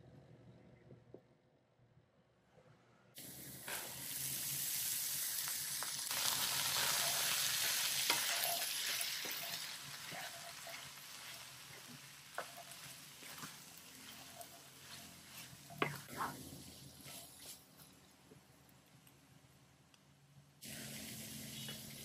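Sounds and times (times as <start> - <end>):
food sizzling in wok: 3.2 - 17.6, 20.6 - 22.0.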